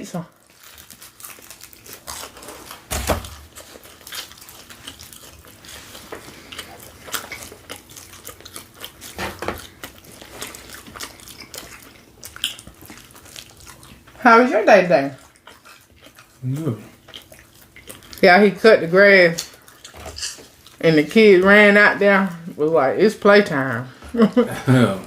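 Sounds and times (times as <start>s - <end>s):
wet chewing and mouth smacks: 0.4s - 14.2s, 15.1s - 18.3s, 19.3s - 20.8s.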